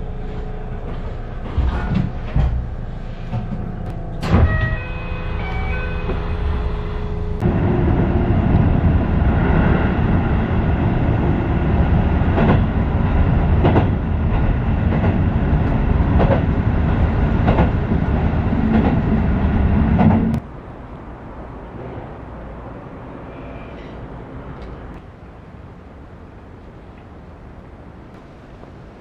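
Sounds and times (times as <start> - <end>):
train running rumble: 0.0 - 29.0
wheel clack over rail joints: 12.3 - 19.2.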